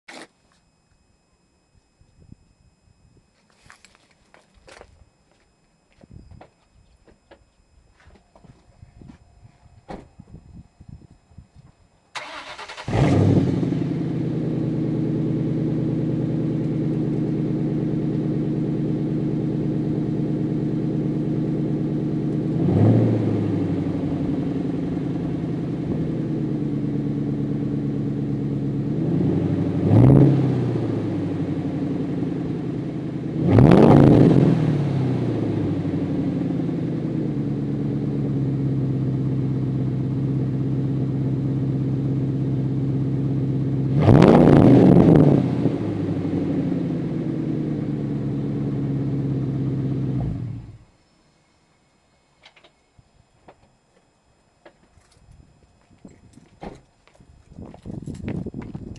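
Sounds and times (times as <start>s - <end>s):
car engine idling and revving: 12.2s - 51.0s.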